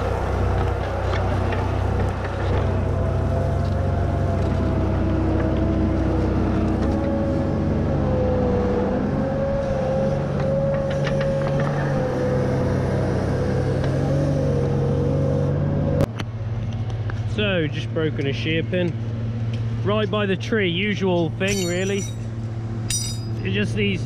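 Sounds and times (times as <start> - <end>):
tractor engine under load: 0.0 - 7.2, 21.4 - 23.5
wavering whine: 21.5 - 22.3.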